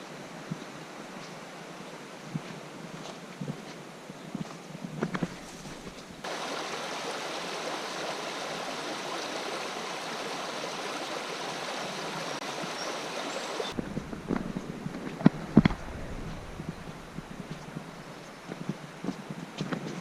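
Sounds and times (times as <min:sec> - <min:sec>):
soft wind-like rustle: 0:00.0 - 0:06.7, 0:11.9 - 0:20.0
stream water rushing: 0:05.6 - 0:19.0.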